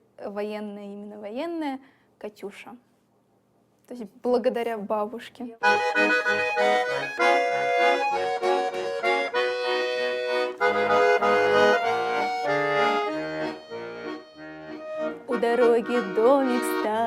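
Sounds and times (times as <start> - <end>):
button accordion playing: 5.6 - 17.0.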